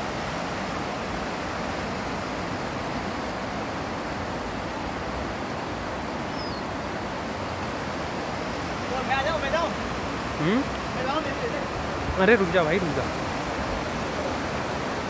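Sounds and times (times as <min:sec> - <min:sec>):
faint high chirp: 0:06.3 - 0:06.7.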